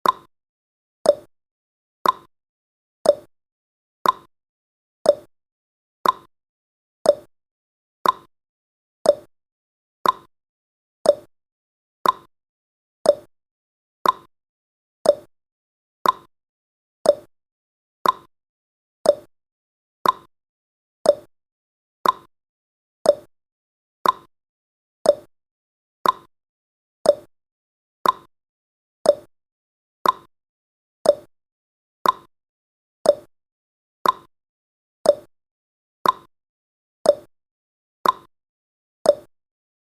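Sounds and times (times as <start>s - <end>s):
clock ticking: 2.0s - 2.3s, 4.0s - 4.3s, 6.0s - 6.3s, 8.0s - 8.3s, 10.0s - 10.3s, 12.0s - 12.3s, 14.0s - 14.3s, 15.1s - 15.3s, 16.0s - 16.3s, 17.1s - 17.3s, 18.0s - 18.3s, 19.1s - 19.3s, 20.0s - 20.3s, 21.1s - 21.3s, 22.0s - 22.3s, 24.0s - 24.3s, 26.0s - 26.3s, 28.0s - 28.3s, 29.1s - 29.3s, 30.0s - 30.3s, 31.1s - 31.3s, 32.0s - 32.3s, 33.1s - 33.3s, 34.0s - 34.3s, 35.1s - 35.3s, 36.0s - 36.3s, 38.0s - 38.3s, 39.1s - 39.3s.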